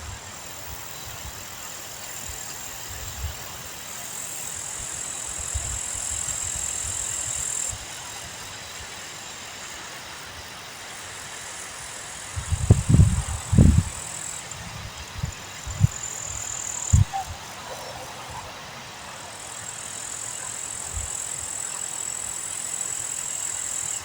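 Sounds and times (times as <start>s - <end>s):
wind buffeting microphone: 12.4s - 17.6s.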